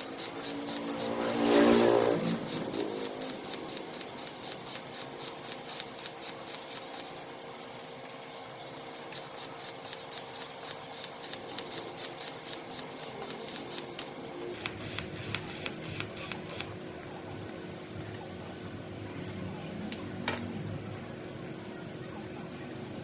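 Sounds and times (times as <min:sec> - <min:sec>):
rhythmic scraping strokes: 0:00.0 - 0:07.3.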